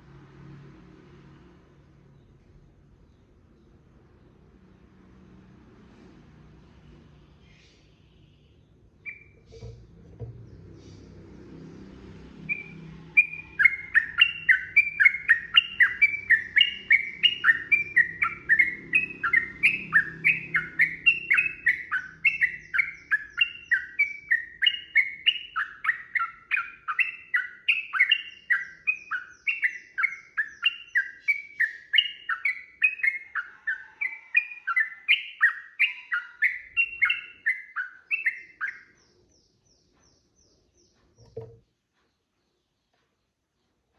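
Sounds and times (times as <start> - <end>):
bird singing bubbly notes: 9.0 - 9.6, 12.5 - 33.8.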